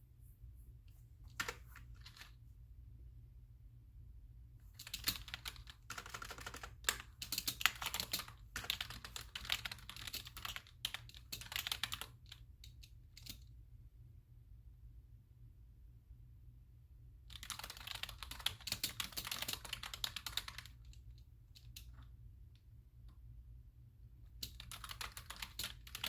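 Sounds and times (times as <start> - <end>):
keyboard typing: 1.3 - 2.3, 4.8 - 13.4, 17.3 - 21.0, 24.4 - 26.0.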